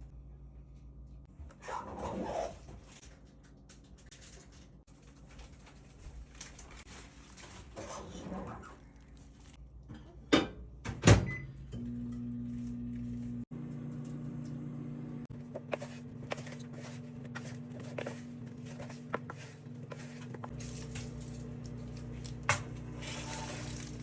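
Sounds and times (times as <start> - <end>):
air fryer humming: 9.6 - 24.0.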